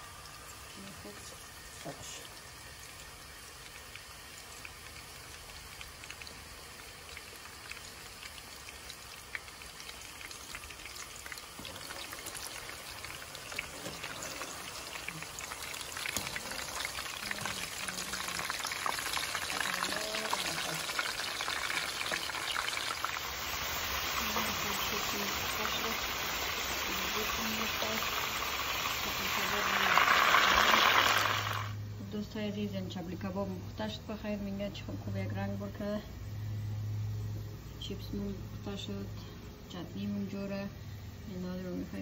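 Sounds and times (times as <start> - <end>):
meat sizzling in hot oil: 0.0 - 31.8.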